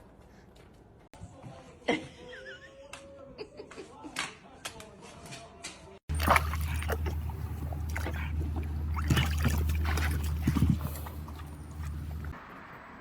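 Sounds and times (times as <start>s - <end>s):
steady low hum: 6.1s - 12.4s.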